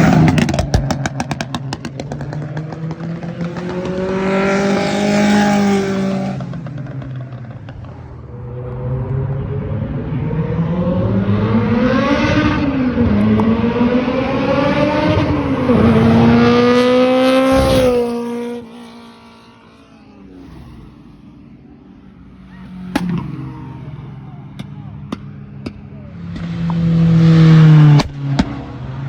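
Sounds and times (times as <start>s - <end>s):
car engine revving past: 0.0s - 29.0s.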